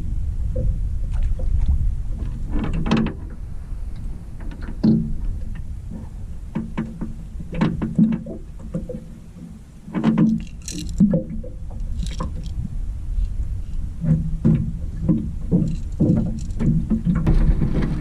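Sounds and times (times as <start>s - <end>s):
low rumble of wind and water: 0.0s - 18.0s
gear knocking and clattering: 14.4s - 18.0s.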